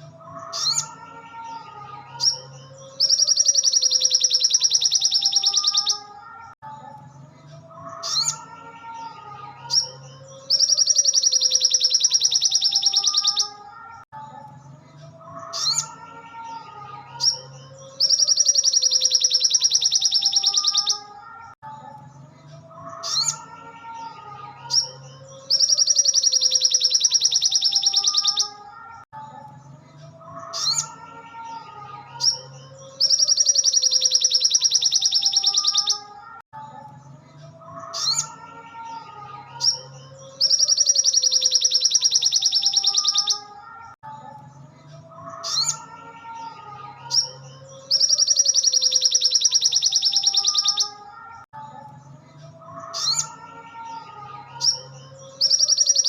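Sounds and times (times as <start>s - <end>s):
sunbird chirps: 17.6s - 21.0s.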